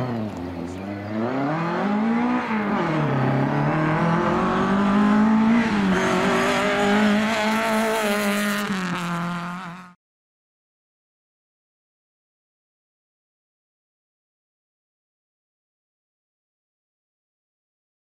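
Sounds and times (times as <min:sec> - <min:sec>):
car engine revving hard: 0:01.1 - 0:10.0.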